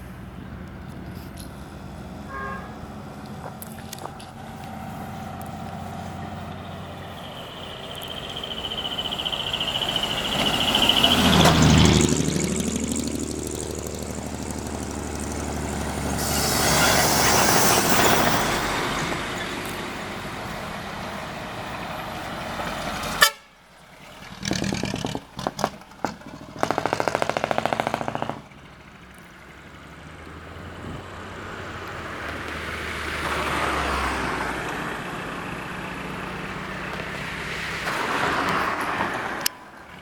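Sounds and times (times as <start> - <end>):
trucks driving past loud exhaust: 0.0 - 40.0
truck horn toots: 2.2 - 3.0, 16.1 - 18.6, 23.0 - 23.6.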